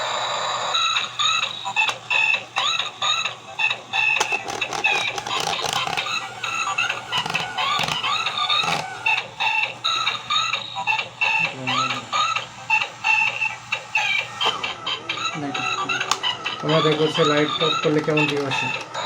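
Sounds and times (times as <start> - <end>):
toy car beeping music: 0.0 - 19.0
clicks: 4.2 - 9.2.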